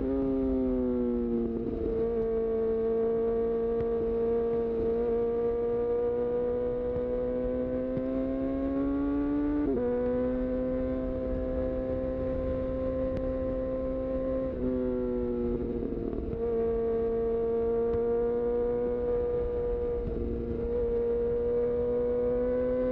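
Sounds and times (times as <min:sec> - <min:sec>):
motorcycle engine revving: 0:00.0 - 0:22.9.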